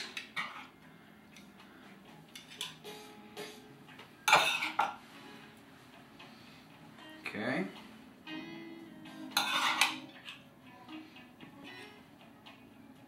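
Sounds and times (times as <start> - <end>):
metal spoon clinking on platter: 9.4 - 10.0.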